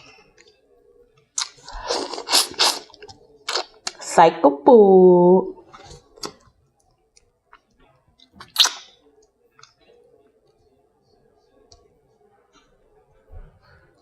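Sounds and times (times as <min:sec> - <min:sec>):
squishy eating sounds: 0:01.3 - 0:04.1, 0:05.7 - 0:06.6, 0:08.2 - 0:09.0.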